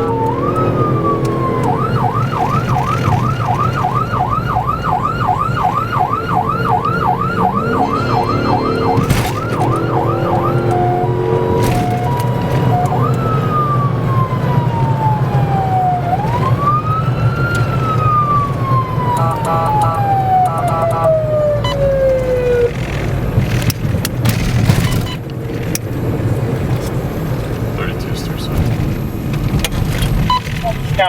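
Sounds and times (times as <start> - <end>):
siren wailing in slow sweeps: 0.0 - 22.8
vehicle engine and road rumble: 0.0 - 31.0.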